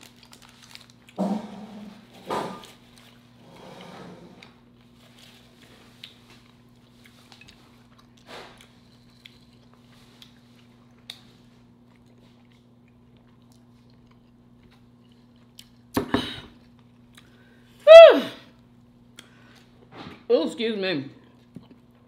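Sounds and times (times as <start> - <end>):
low electrical hum: 0.0 - 22.0
quiet chewing: 4.4 - 17.8, 19.1 - 19.9, 21.2 - 22.0.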